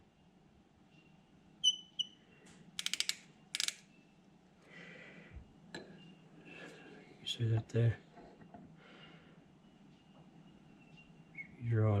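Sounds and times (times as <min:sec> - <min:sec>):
measuring tool high chirps: 0:01.6 - 0:02.2
measuring tool clicks: 0:02.8 - 0:03.8.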